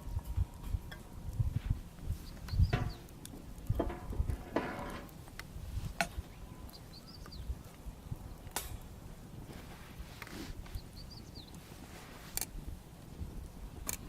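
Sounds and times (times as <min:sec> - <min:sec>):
bonfire crackling: 0:00.0 - 0:14.0
small bird chirping: 0:02.1 - 0:03.1, 0:06.2 - 0:08.4, 0:10.6 - 0:11.6.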